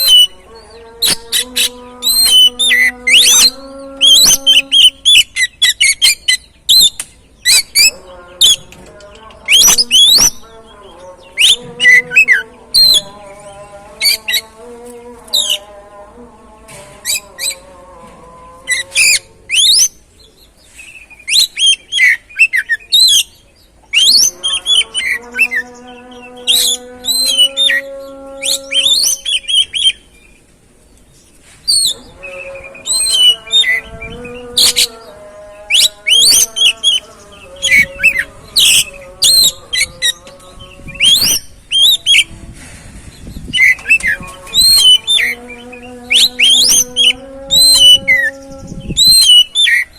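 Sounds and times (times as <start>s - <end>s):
bird singing chirps and trills: 0.0s - 49.9s.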